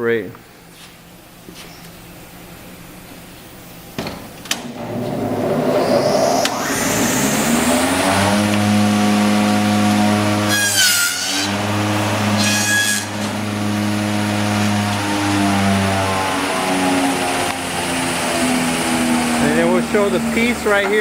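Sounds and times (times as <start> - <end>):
milling machine motor humming: 4.6 - 10.5, 11.5 - 12.4, 13.1 - 21.0.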